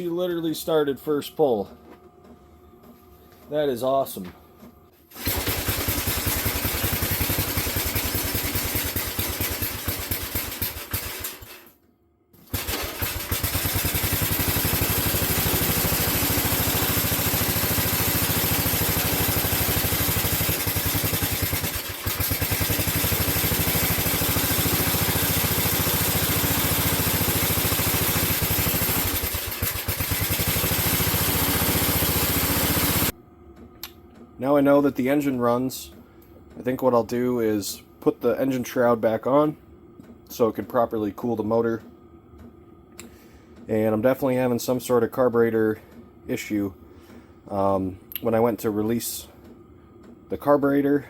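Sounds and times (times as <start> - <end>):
small engine running: 5.1 - 11.7, 12.4 - 33.1.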